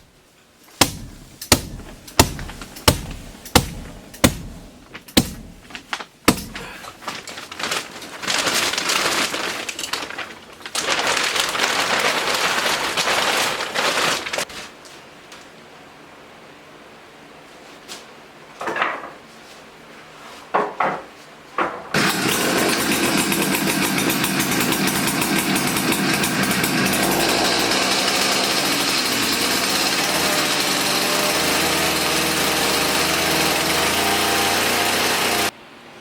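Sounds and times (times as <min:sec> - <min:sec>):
small engine running: 0:22.0 - 0:35.5.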